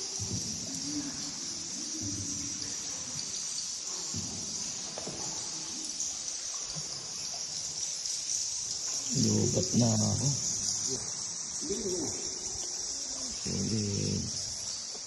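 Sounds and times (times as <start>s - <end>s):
bats chittering: 0.0s - 15.0s.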